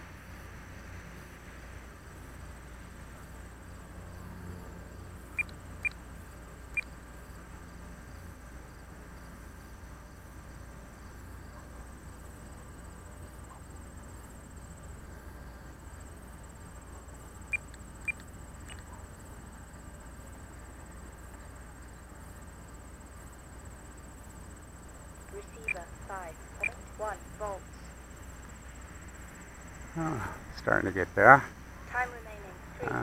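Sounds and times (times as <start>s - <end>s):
short high beeps: 25.6s - 25.8s.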